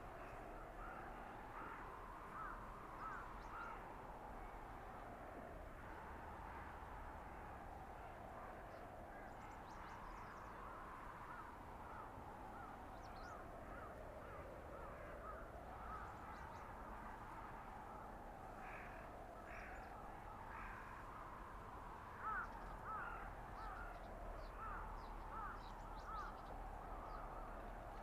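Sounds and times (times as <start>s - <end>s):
howling wind through forest: 0.0s - 28.0s.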